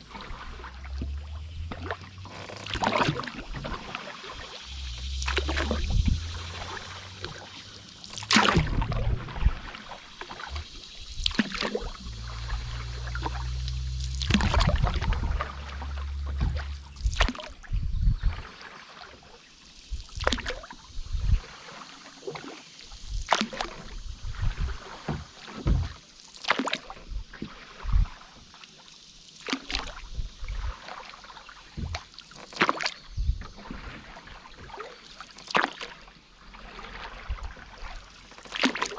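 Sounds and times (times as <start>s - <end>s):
low rumble: 0.0s - 18.4s
paddle splashing in water: 0.0s - 38.9s
water drips and gurgles: 0.0s - 38.9s.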